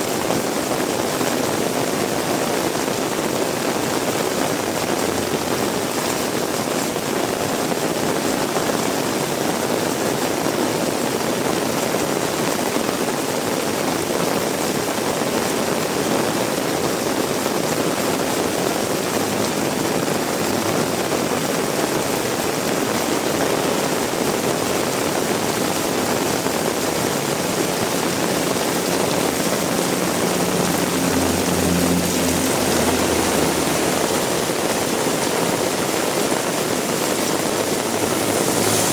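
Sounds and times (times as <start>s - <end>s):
heavy rain hissing: 0.0s - 38.9s
passing vehicle engine hum: 4.1s - 6.4s, 17.3s - 38.9s.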